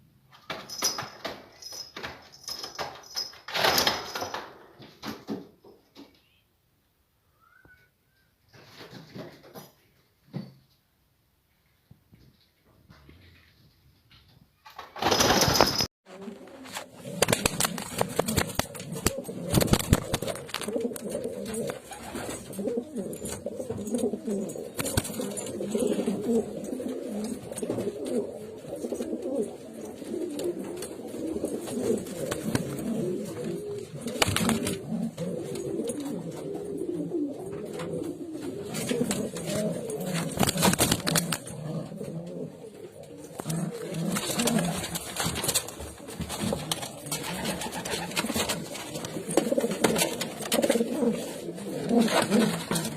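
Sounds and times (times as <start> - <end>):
pigeons cooing: 16.2 - 52.9.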